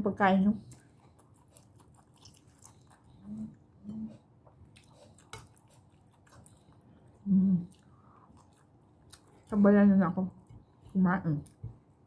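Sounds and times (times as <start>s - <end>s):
wet chewing and mouth clicks: 0.6s - 12.0s
person humming mm: 3.2s - 4.2s.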